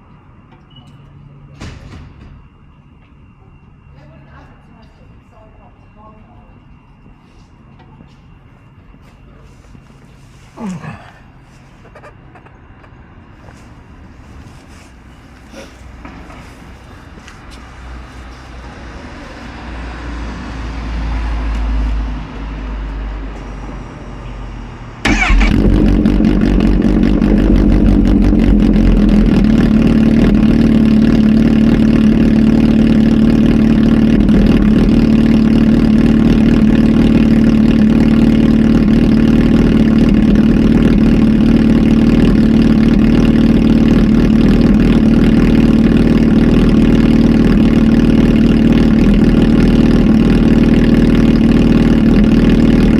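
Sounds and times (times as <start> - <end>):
motorcycle engine starting and idling: 25.0 - 52.9.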